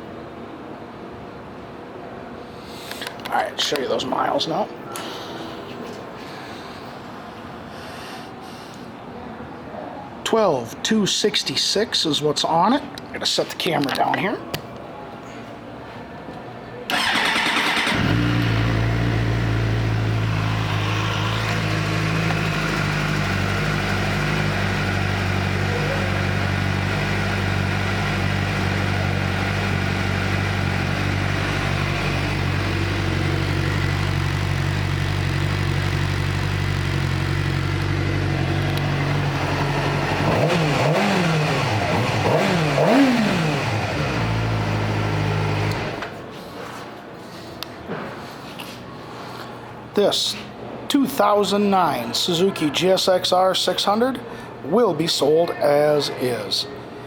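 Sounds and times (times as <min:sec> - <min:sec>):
motorcycle engine revving: 0:16.9 - 0:46.1
motorcycle engine starting and idling: 0:16.9 - 0:46.2.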